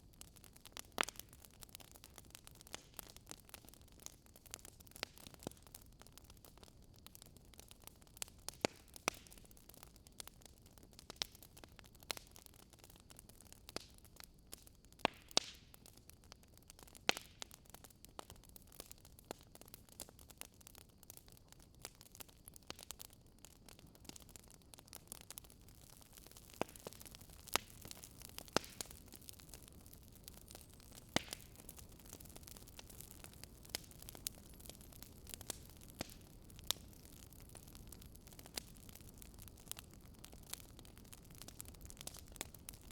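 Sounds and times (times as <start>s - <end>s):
fire crackling: 0.0s - 42.9s
soft steady hiss: 0.0s - 42.9s.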